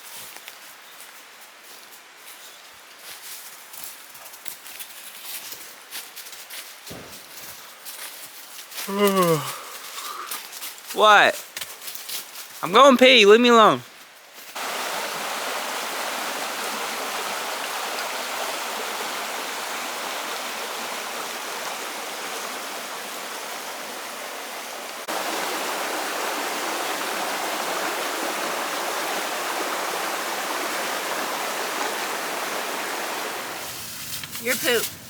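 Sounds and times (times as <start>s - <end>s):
flowing water rushing: 11.0s - 11.3s, 14.5s - 35.0s.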